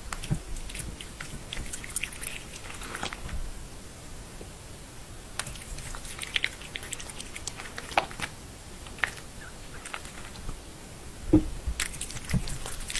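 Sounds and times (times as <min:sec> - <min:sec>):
pet chewing food: 0:00.0 - 0:03.4, 0:05.4 - 0:10.6, 0:11.4 - 0:12.9
knock: 0:11.3 - 0:11.6.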